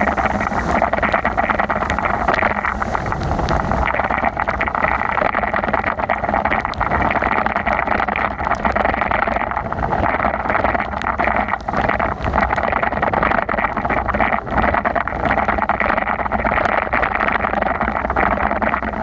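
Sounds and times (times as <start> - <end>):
heavy rain hiss: 0.0 - 5.1
wind on microphone: 0.0 - 19.0.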